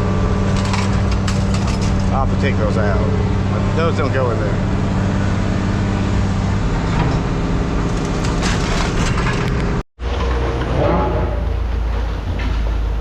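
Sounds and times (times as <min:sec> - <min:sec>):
steady machine hum: 0:00.0 - 0:13.0
scrap metal crunching and clattering: 0:00.4 - 0:02.6, 0:06.8 - 0:13.0.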